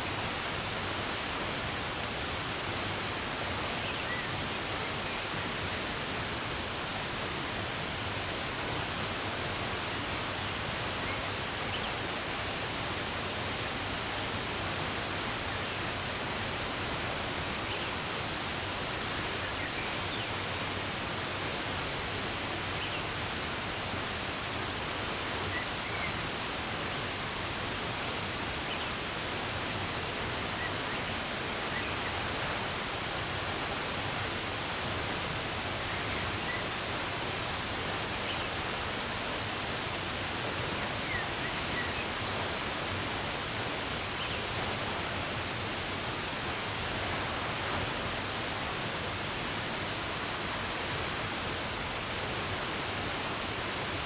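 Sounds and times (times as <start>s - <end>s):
rushing running water: 0.0s - 54.0s.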